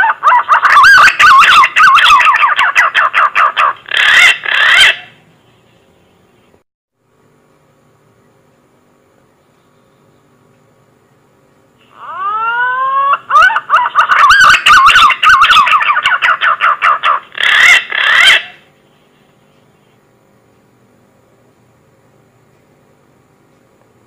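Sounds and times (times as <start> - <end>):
pigeon lure call whistles: 0.3 - 3.1, 11.9 - 16.6.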